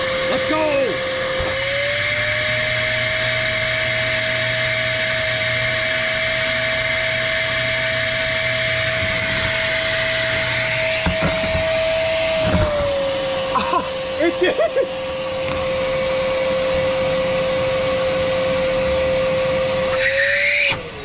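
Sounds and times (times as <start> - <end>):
shop vacuum motor whine: 0.0 - 21.0
rushing air: 7.9 - 14.1.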